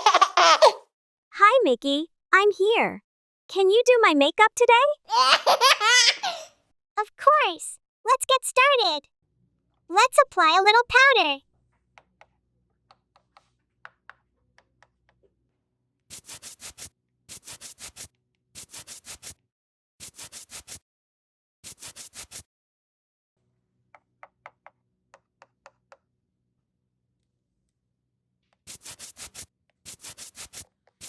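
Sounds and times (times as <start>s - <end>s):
applicator rubbing a surface: 16.1s - 19.4s, 20.0s - 20.8s, 21.6s - 22.5s, 28.6s - 31.0s.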